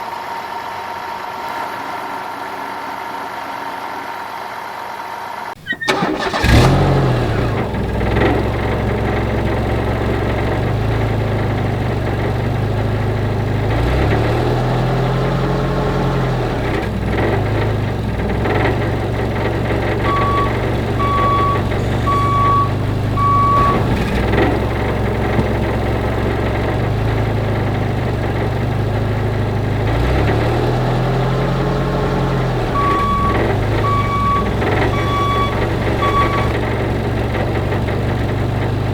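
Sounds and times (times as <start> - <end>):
truck engine running: 5.6 - 38.9
reversing beeper: 19.8 - 24.9, 32.7 - 36.6.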